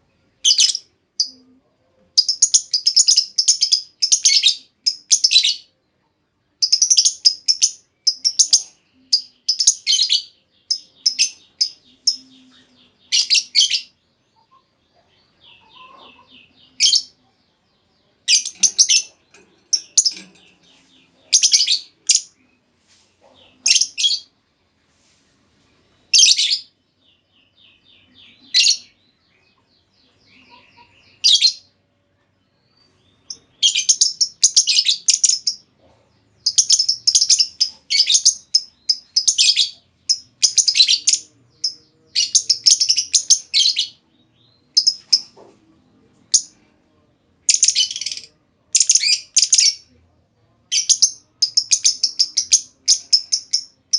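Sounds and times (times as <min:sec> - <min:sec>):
lovebird shrill chirps and chattering: 0:02.2 - 0:05.6, 0:06.6 - 0:12.2, 0:18.3 - 0:20.6, 0:21.3 - 0:22.3, 0:23.6 - 0:24.3, 0:33.6 - 0:35.6, 0:36.4 - 0:44.0, 0:44.7 - 0:45.3, 0:47.5 - 0:49.8, 0:50.7 - 0:53.9.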